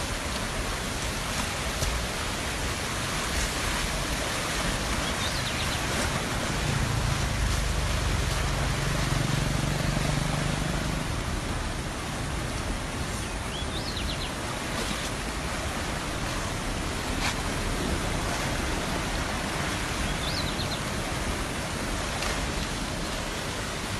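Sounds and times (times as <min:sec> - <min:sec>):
water rushing: 0:00.0 - 0:23.9.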